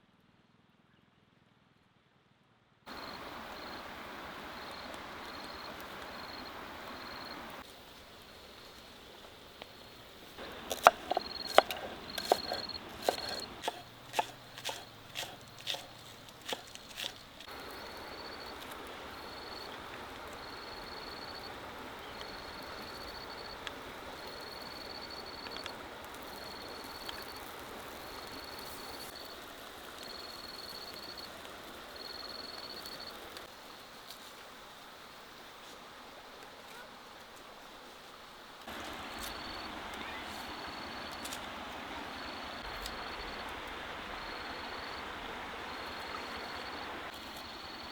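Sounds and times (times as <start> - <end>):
insect chirping: 2.9 - 36.4, 37.4 - 47.9
steady hiss: 2.9 - 47.9.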